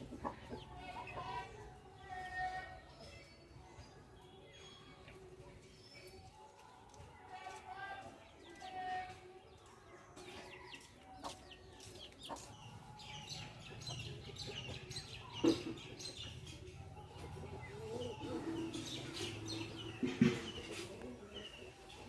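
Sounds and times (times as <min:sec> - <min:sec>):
chicks peeping: 0:09.1 - 0:22.0.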